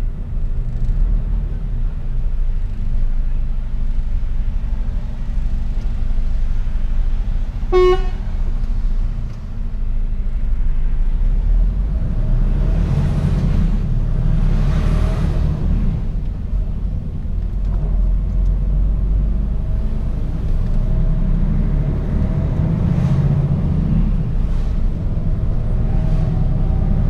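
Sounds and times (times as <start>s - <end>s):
truck diesel engine drone: 0.0s - 27.0s
vehicle horn toot: 7.7s - 8.3s.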